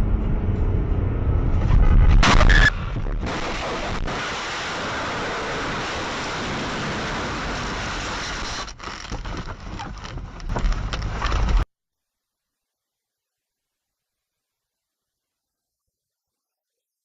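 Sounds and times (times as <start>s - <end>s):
road and wind noise in car: 0.0s - 11.7s
loud burst: 1.7s - 8.3s.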